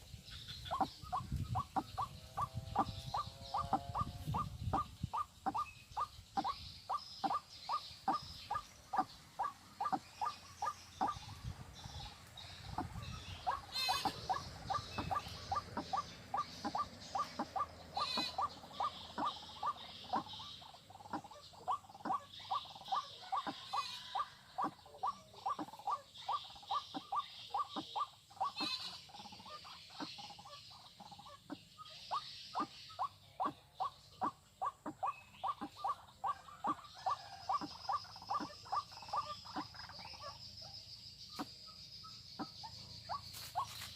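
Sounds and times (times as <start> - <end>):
bird calling sharp notes: 12.6 - 30.6.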